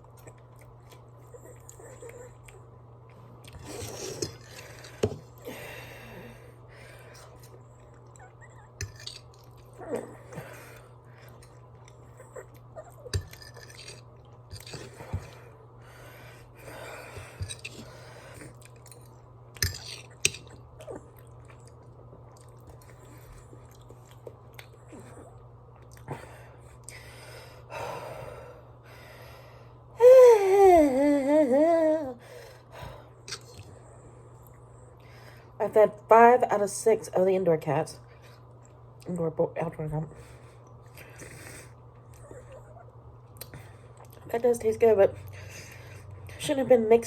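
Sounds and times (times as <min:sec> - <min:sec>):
close chewing of soft food: 0:00.0 - 0:27.2, 0:40.6 - 0:44.3.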